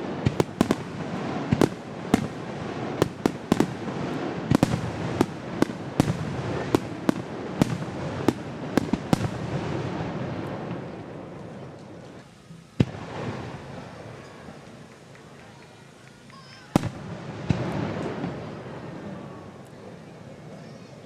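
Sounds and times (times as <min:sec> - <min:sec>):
rumble of echoing bursts: 0:00.0 - 0:11.8
fireworks sharp bangs: 0:00.0 - 0:12.2, 0:12.8 - 0:15.2, 0:16.5 - 0:19.4.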